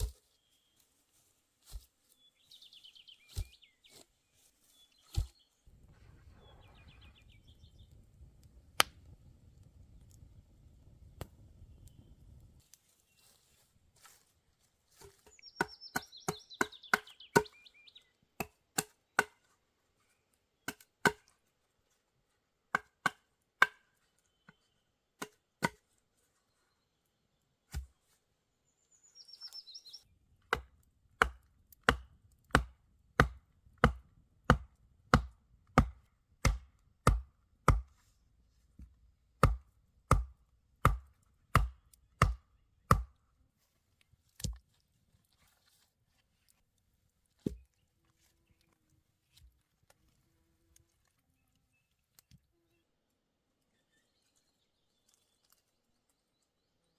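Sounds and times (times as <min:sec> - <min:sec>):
bird chirping: 0:02.2 - 0:04.0, 0:04.7 - 0:09.2, 0:15.3 - 0:18.1, 0:28.6 - 0:30.1
blade chopping blows: 0:30.5 - 0:38.0, 0:39.4 - 0:43.1.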